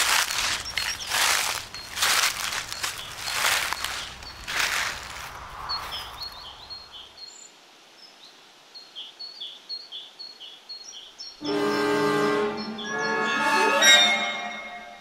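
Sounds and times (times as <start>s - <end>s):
small birds chirping: 0.0s - 11.4s.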